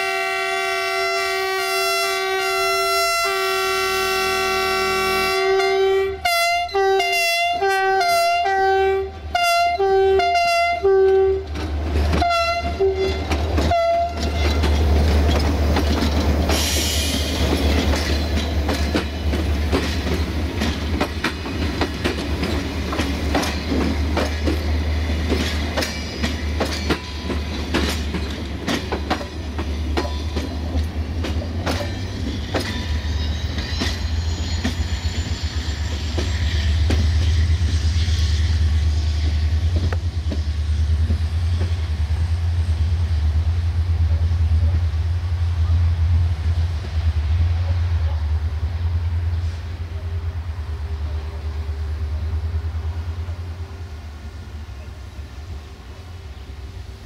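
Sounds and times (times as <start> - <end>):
locomotive horn blasts: 0.0 - 14.7
wheels clicking over rail joints: 11.0 - 32.9.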